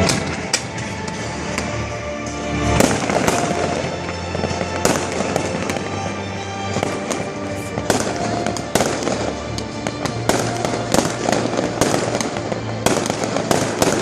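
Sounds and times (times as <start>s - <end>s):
fireworks bangs: 0.0s - 14.0s
music: 0.0s - 14.0s.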